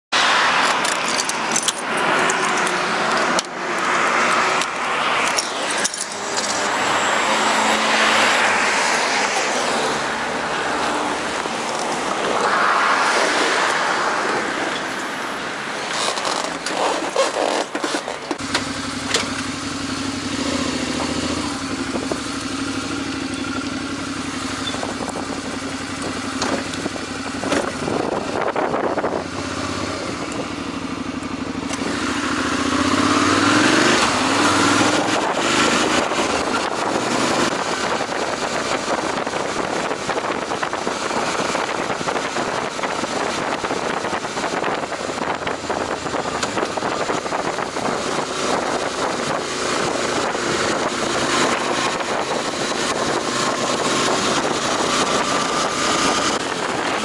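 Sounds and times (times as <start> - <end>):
clicks and knocks of gear: 0.6 - 4.0, 4.6 - 6.7, 15.9 - 19.5
motorcycle engine running: 16.2 - 57.0
wind on microphone: 24.7 - 30.8, 31.8 - 57.0.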